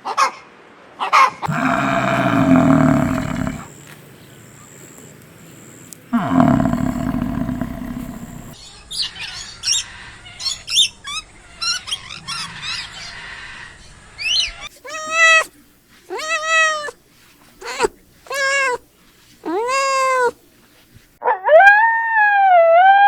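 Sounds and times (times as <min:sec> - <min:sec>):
low animal calls: 0:01.5 - 0:03.8, 0:06.1 - 0:08.6, 0:19.5 - 0:20.4.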